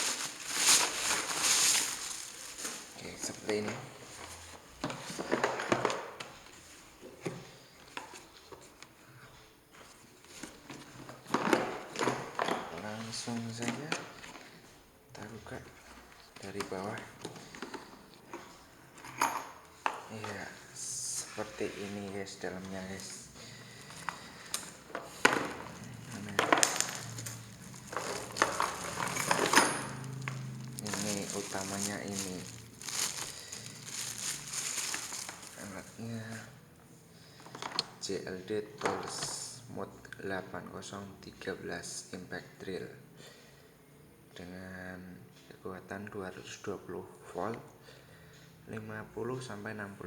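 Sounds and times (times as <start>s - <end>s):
rustling: 0.0s - 5.4s, 19.8s - 36.6s.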